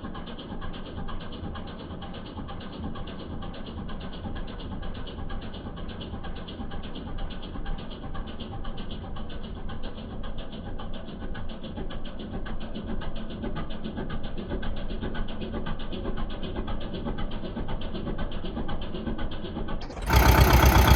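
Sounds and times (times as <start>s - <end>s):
tractor diesel engine running: 19.8s - 20.9s.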